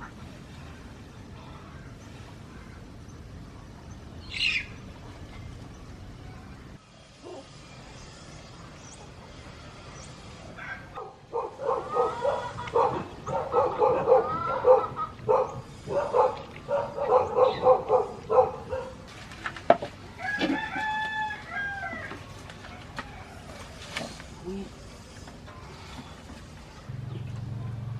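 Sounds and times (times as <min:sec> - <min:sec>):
chickens cackling: 0:10.6 - 0:18.5
rooster crowing: 0:20.2 - 0:22.2.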